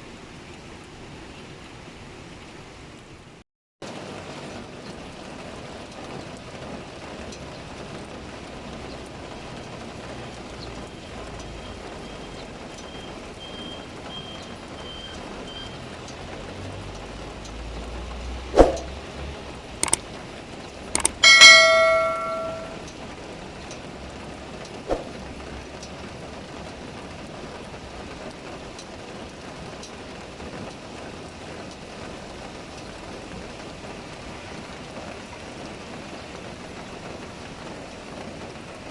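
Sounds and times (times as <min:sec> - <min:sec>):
heavy rain falling: 0:00.0 - 0:20.9, 0:22.8 - 0:38.9
metallic clang ringing: 0:21.0 - 0:22.8
sharp knocks: 0:21.0 - 0:22.8.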